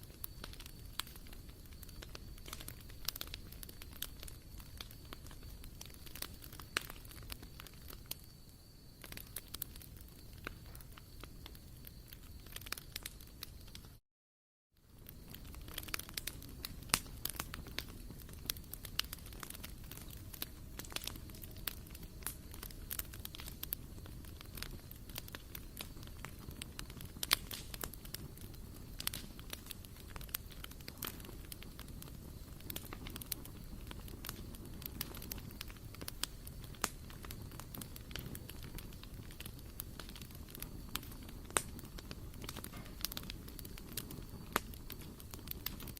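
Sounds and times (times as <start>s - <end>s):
wood fire crackling and popping: 0.0s - 14.0s, 14.8s - 45.9s.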